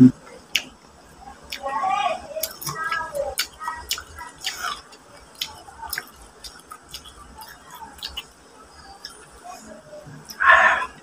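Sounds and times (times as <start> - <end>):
wet chewing and lip-smacking: 0.4 - 0.8, 1.5 - 1.7, 2.4 - 9.5.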